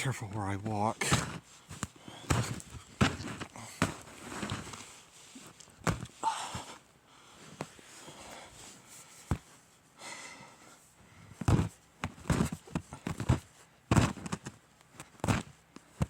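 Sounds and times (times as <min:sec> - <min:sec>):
footsteps crunching in snow: 0:00.0 - 0:06.2.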